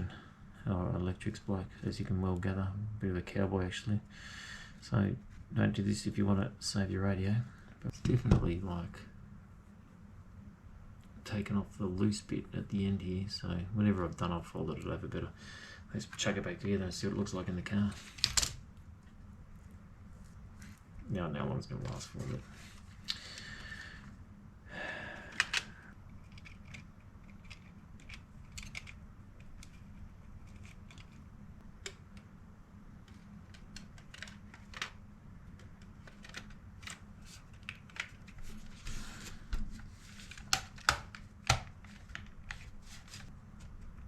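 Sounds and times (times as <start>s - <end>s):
low steady hum: 0.0s - 44.0s
plastic parts clicking and rattling: 25.3s - 31.2s, 33.0s - 38.5s.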